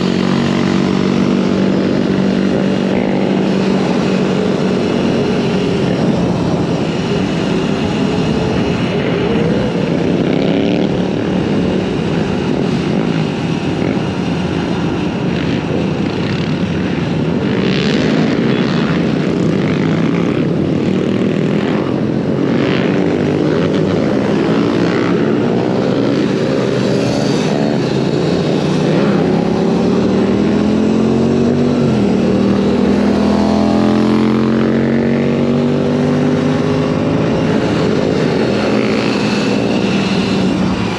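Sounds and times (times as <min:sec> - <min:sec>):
rushing wind noise: 0:00.0 - 0:40.9.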